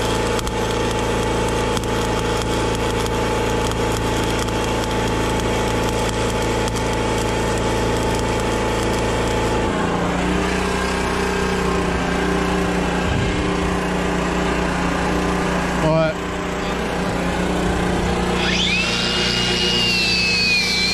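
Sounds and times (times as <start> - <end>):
loud crackling: 0.0 - 9.7, 16.4 - 20.9
engine running: 0.0 - 20.9.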